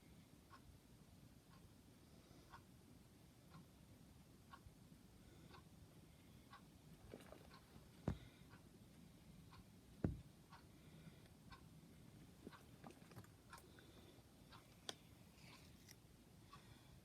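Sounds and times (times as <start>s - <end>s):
soft knock: 10.0s - 10.2s.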